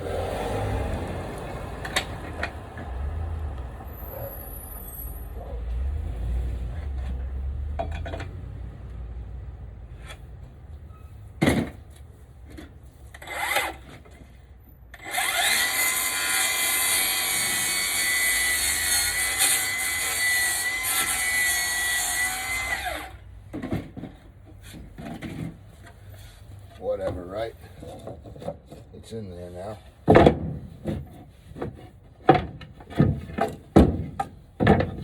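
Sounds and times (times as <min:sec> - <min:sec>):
electric saw cutting wood: 0:13.2 - 0:13.8, 0:15.0 - 0:23.2.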